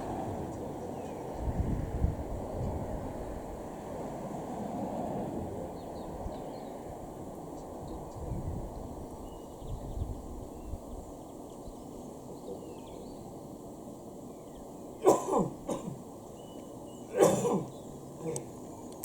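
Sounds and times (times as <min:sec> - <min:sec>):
person coughing: 0:15.0 - 0:16.0, 0:17.1 - 0:18.5.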